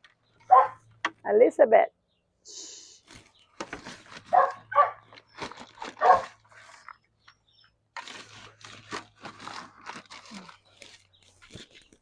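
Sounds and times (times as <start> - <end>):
dog barking: 0.5 - 0.8, 4.3 - 5.1, 6.0 - 6.4
rustling: 3.0 - 7.0, 8.0 - 12.0.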